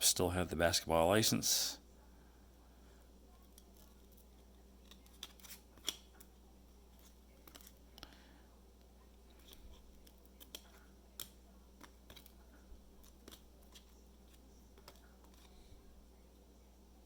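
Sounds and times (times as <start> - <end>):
steady low hum: 0.0 - 17.0
trading cards being flipped: 4.8 - 6.3, 7.0 - 7.8, 9.4 - 12.4, 13.0 - 15.6.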